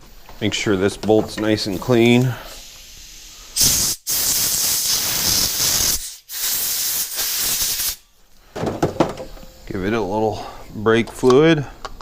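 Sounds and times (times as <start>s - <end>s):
hissing spray blasts: 1.7s - 8.0s.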